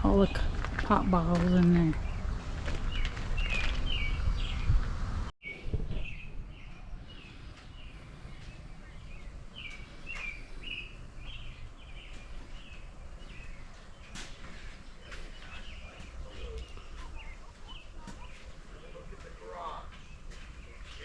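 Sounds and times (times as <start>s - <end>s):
wind rumble on microphone: 0.0s - 9.7s.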